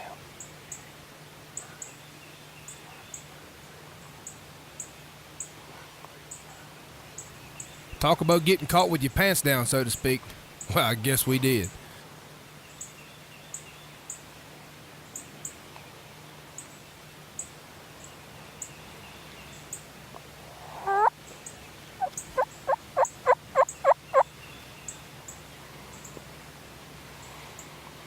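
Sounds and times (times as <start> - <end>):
turkey calling: 20.4 - 21.2, 22.0 - 24.3.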